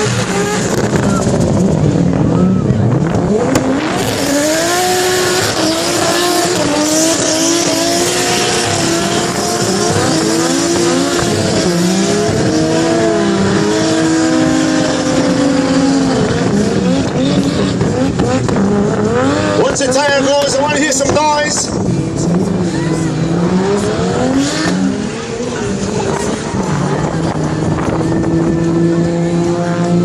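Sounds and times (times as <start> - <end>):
car engine revving hard: 0.0 - 30.0.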